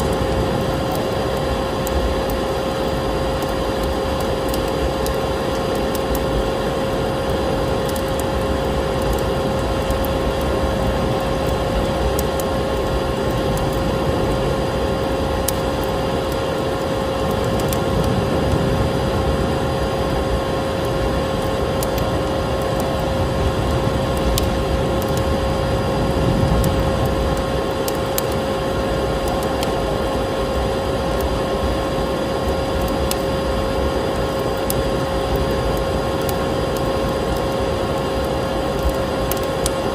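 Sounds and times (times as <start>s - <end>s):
vacuum cleaner motor whine: 0.0s - 39.9s
wood fire crackling and popping: 0.0s - 39.9s.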